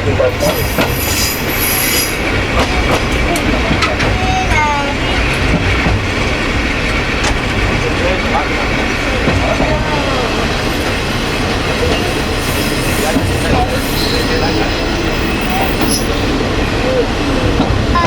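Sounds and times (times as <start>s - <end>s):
diesel railcar rumbling: 0.0s - 18.0s
wheel squeals: 0.4s - 2.4s, 11.8s - 16.4s.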